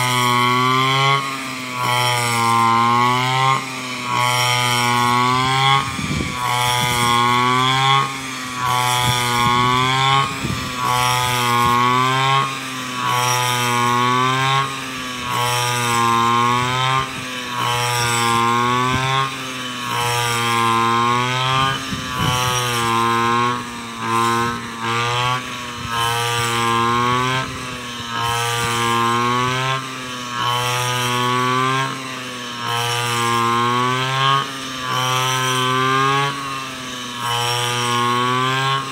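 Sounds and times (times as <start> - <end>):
brush cutter engine running: 0.0 - 38.9.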